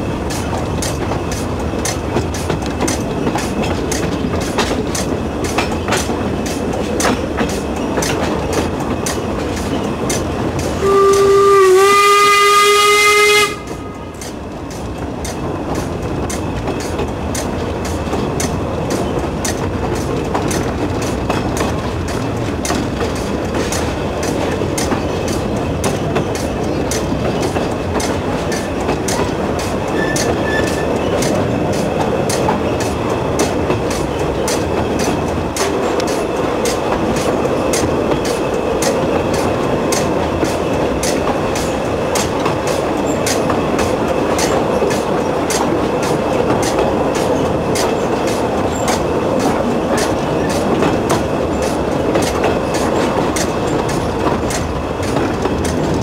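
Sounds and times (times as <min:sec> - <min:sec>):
train rumbling on track: 0:00.0 - 0:56.0
wheels clicking over rail joints: 0:00.0 - 0:56.0.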